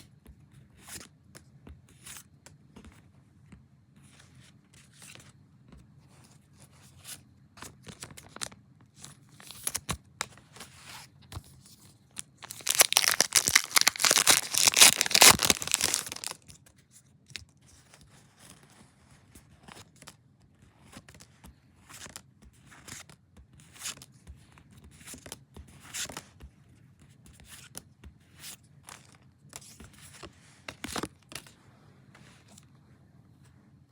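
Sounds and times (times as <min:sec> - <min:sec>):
foil pack crinkling tear: 0:09.4 - 0:09.9, 0:12.2 - 0:16.4
soft handling rustles and clicks: 0:12.2 - 0:16.4.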